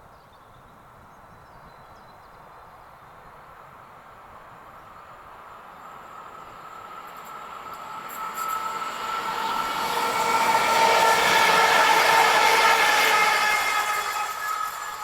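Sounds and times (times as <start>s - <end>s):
train rolling noise: 3.6s - 15.0s.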